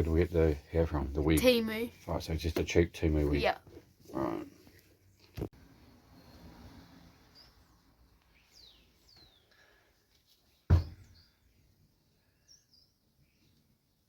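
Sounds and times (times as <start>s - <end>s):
faint bird chirps: 10.9s - 13.6s.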